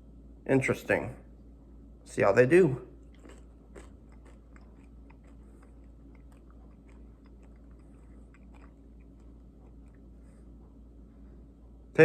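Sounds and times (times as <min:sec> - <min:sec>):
faint crunchy chewing: 0:03.0 - 0:11.2.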